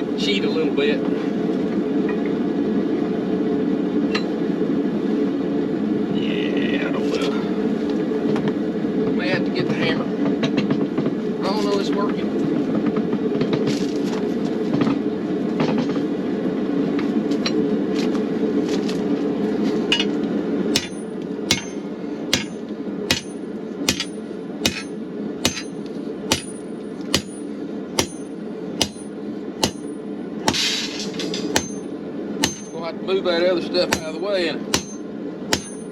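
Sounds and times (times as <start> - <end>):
hammer ringing on anvil: 19.9 - 20.2, 20.8 - 21.8, 22.4 - 30.7, 31.5 - 32.8, 33.9 - 35.9.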